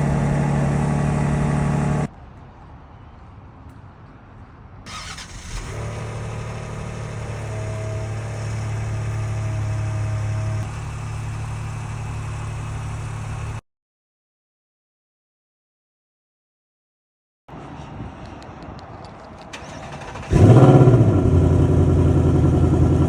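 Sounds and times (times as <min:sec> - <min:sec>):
car engine idling: 0:00.0 - 0:02.1, 0:05.6 - 0:13.6, 0:19.5 - 0:23.0
engine starter cranking: 0:04.9 - 0:06.6, 0:19.5 - 0:21.2.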